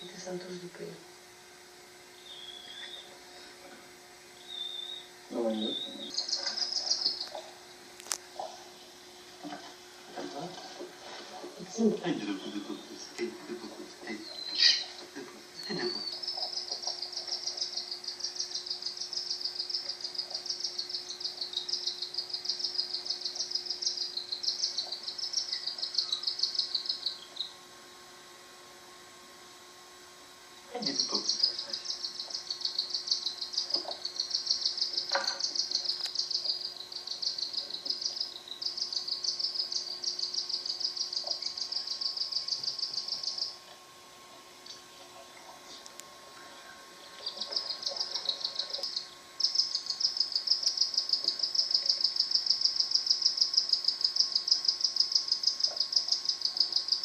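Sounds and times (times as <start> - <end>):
chick begging chirps: 47.2 - 52.1.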